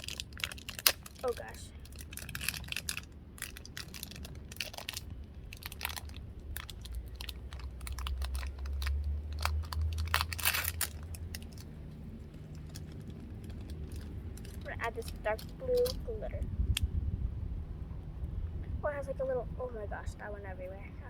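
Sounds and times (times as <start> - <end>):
slime crackling and clicking: 0.0 - 11.7, 12.4 - 16.0
low rumble: 0.0 - 21.0.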